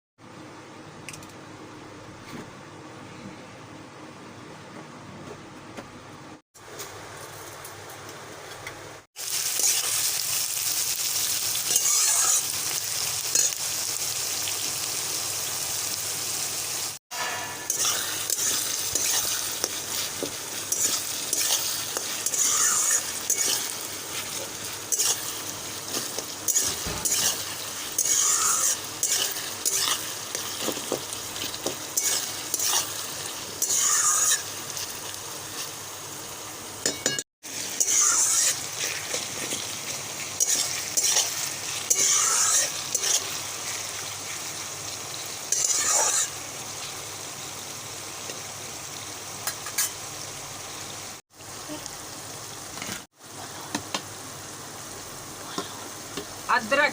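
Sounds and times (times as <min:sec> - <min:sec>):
food sizzling in oil: 0:09.1 - 0:56.9
spatula scraping a pan: 0:11.7 - 0:12.5, 0:17.1 - 0:33.0, 0:33.6 - 0:34.5, 0:37.7 - 0:39.8, 0:40.4 - 0:43.4, 0:45.5 - 0:46.4.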